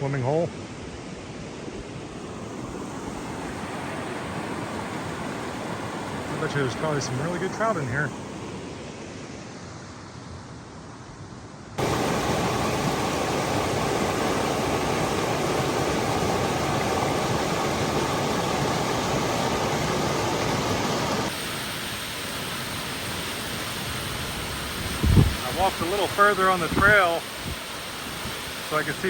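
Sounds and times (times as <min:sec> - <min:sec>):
creek water rushing: 0:00.0 - 0:09.9, 0:11.8 - 0:29.0
waterfall rushing: 0:02.1 - 0:08.4, 0:11.8 - 0:29.0.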